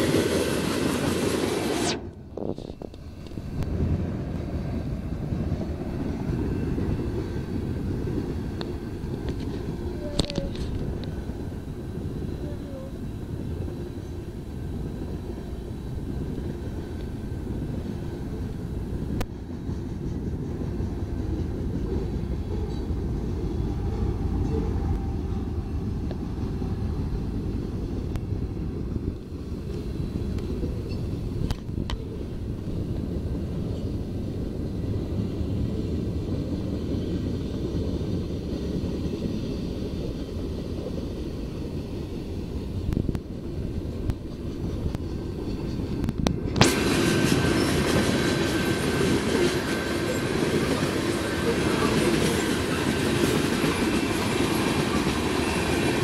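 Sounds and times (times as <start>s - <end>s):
diesel locomotive passing: 0.0s - 56.0s
freight train wheels rumbling: 0.0s - 56.0s.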